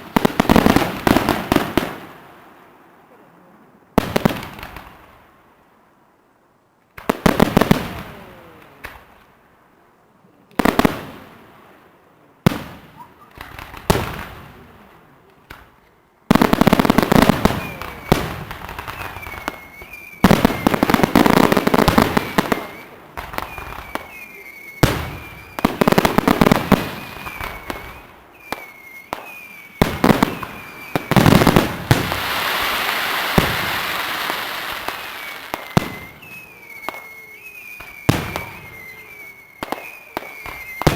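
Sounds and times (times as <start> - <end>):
firework bangs: 0.0 - 2.2, 7.0 - 9.2, 12.4 - 14.8, 15.4 - 40.9
firework crackling: 0.0 - 2.5, 6.9 - 9.3, 12.4 - 14.8, 15.4 - 40.9
firework whistling: 16.4 - 40.9.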